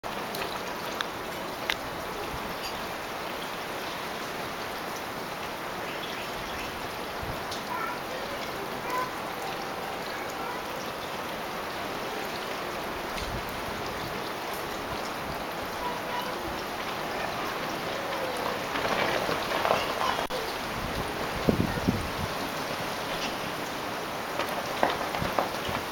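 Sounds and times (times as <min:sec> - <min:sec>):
pattering of wind-driven snow: 0:12.8 - 0:25.9
wind rushing: 0:20.6 - 0:23.1.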